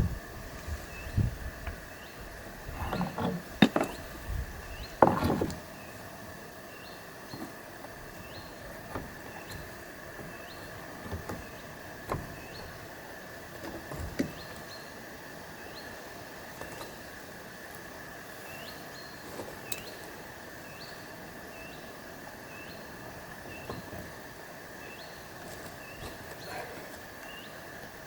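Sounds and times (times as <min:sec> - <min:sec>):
outdoor hiss: 0:00.0 - 0:28.0.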